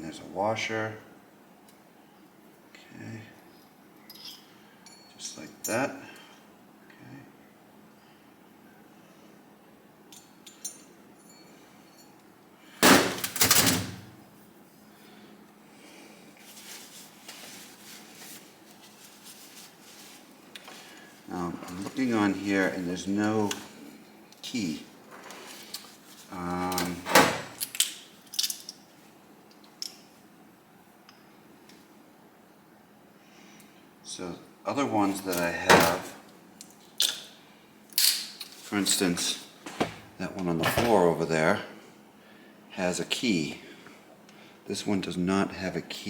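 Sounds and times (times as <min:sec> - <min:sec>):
metal engine parts clinking: 0:04.0 - 0:05.2
metallic clinks of engine parts: 0:04.0 - 0:05.8, 0:10.1 - 0:12.2.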